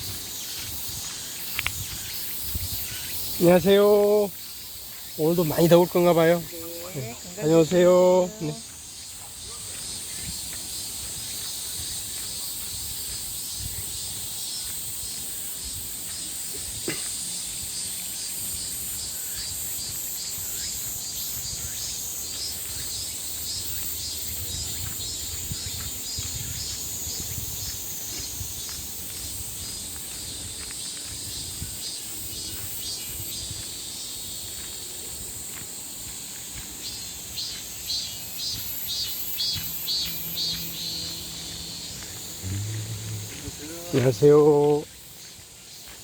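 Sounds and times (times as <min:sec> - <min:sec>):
cicadas and crickets chirring: 0:00.0 - 0:46.0.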